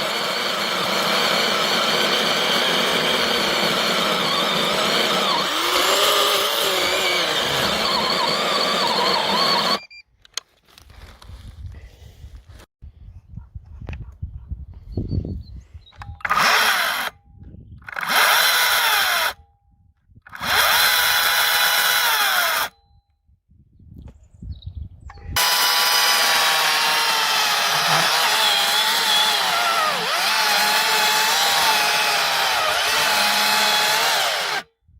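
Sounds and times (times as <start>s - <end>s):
electric chainsaw running: 0.0s - 9.8s, 16.3s - 17.1s, 18.0s - 19.4s, 20.4s - 22.7s, 25.4s - 34.7s.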